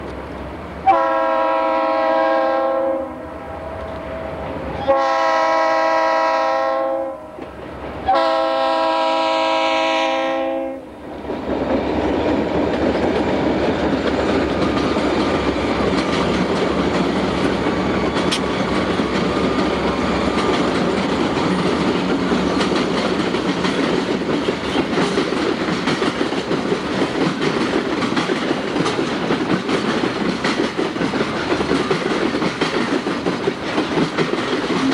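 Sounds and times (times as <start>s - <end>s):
train air horn blasts: 0.8s - 7.4s, 8.0s - 10.9s
train wheels rumbling and clattering: 3.7s - 34.9s.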